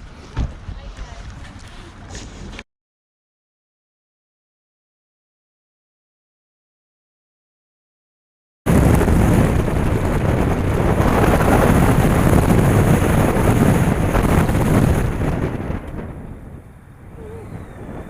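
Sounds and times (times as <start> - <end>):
wind rushing over microphone: 8.7 - 18.0.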